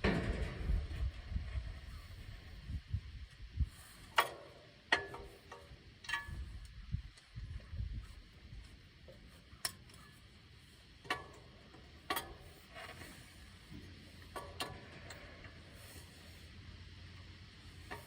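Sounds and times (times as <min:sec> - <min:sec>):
low rumble: 0:00.0 - 0:03.8.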